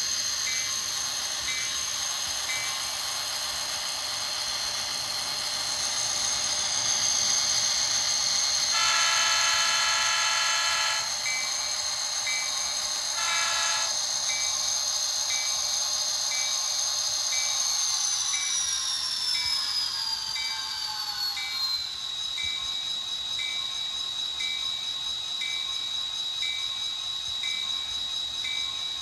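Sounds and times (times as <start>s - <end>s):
steady high whine: 0.0s - 29.0s
train horn blasts: 8.7s - 11.4s, 13.2s - 14.0s
locomotive bell dinging: 8.7s - 14.6s.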